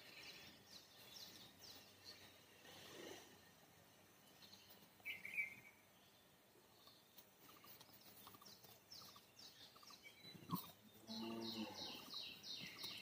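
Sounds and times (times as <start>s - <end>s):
faint bird chirps: 4.1s - 13.0s.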